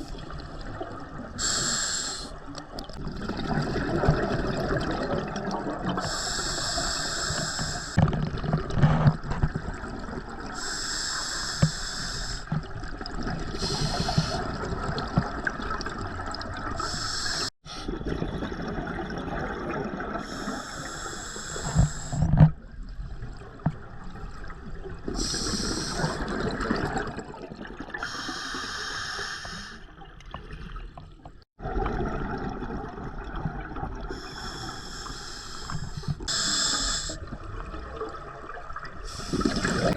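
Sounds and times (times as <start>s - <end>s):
regulator breath hiss: 1.4s - 2.4s, 6.0s - 8.0s, 10.6s - 12.5s, 13.6s - 14.4s, 16.8s - 17.9s, 20.2s - 22.3s, 25.2s - 26.2s, 28.0s - 29.8s, 34.2s - 37.2s, 39.1s - 39.9s
water bubbling: 2.5s - 6.3s, 37.0s - 39.9s.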